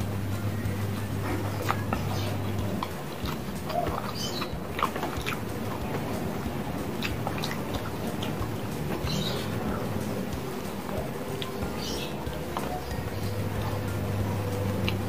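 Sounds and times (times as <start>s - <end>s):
wet mouth clicks and smacks: 0.1s - 15.0s
person chewing food: 0.9s - 10.5s.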